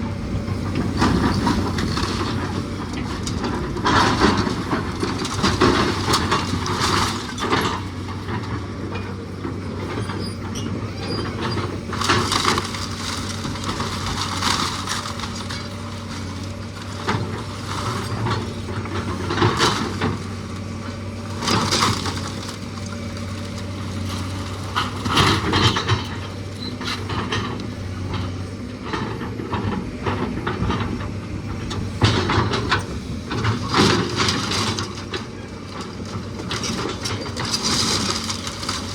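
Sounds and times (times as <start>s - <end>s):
heavy machine engine running: 0.0s - 38.9s
wood cracking and crunching: 11.8s - 27.7s, 32.2s - 38.9s.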